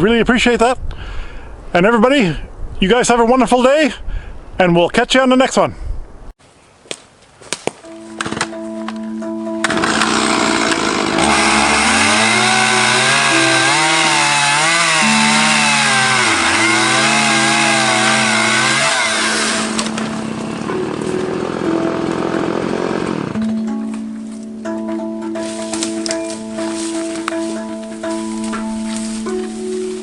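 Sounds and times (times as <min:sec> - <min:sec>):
background music with held notes: 0:07.8 - 0:30.0
chainsaw revving: 0:09.6 - 0:23.5.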